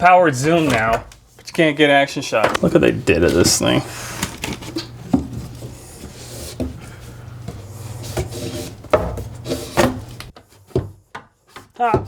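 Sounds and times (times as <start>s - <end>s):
plumbing pipe knocks and rubbing: 2.4s - 10.9s.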